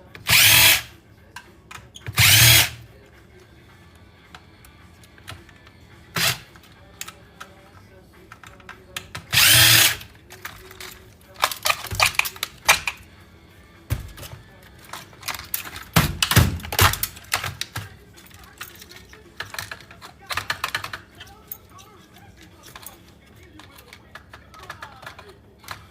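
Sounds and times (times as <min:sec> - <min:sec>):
power drill whirring: 0:00.2 - 0:00.9, 0:02.0 - 0:02.8, 0:06.2 - 0:06.6, 0:09.3 - 0:10.1
metallic clicks and clatters: 0:08.3 - 0:13.0, 0:14.0 - 0:25.9.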